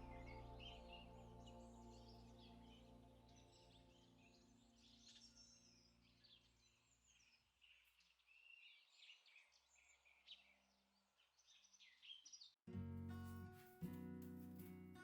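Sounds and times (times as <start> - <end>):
low held note: 0.0 - 4.7
small birds chirping: 0.0 - 12.6.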